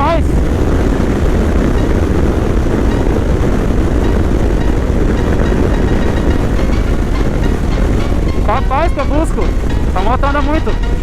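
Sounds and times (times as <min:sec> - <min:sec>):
motorcycle engine rumble: 0:00.0 - 0:11.0
wind rushing over microphone: 0:00.0 - 0:11.0.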